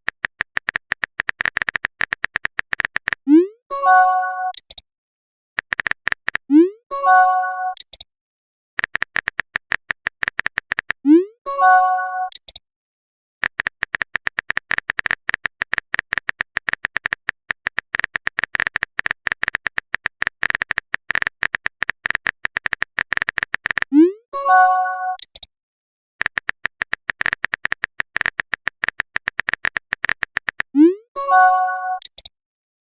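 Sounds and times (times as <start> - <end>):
typing clicks: 0.0 - 3.4, 4.5 - 4.8, 5.6 - 6.6, 7.7 - 8.1, 8.8 - 11.1, 12.2 - 12.6, 13.4 - 23.9, 25.2 - 25.5, 26.2 - 30.8, 31.4 - 32.3.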